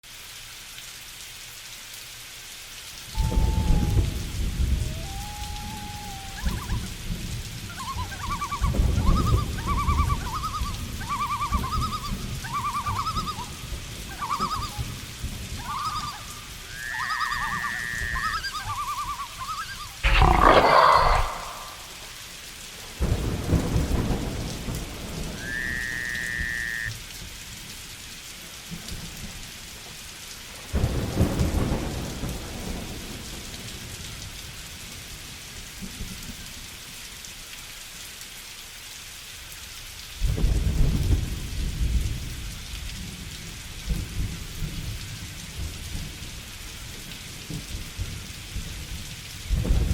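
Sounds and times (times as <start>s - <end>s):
rain falling: 0.0s - 49.9s
thunder rumbling: 3.1s - 22.3s, 23.0s - 26.5s
animal calls: 4.8s - 7.0s, 7.7s - 22.2s
loud sudden sound: 20.0s - 22.2s.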